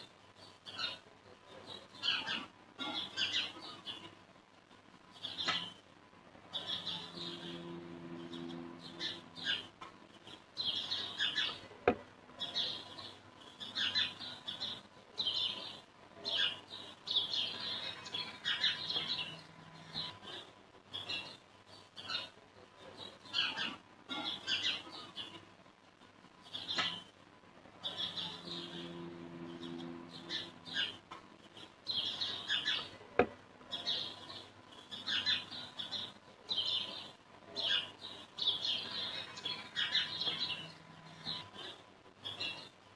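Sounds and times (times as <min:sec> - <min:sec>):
small birds chirping: 0:00.0 - 0:04.3, 0:05.0 - 0:42.9
steady low hum: 0:06.0 - 0:15.0, 0:15.9 - 0:21.0, 0:27.2 - 0:35.0.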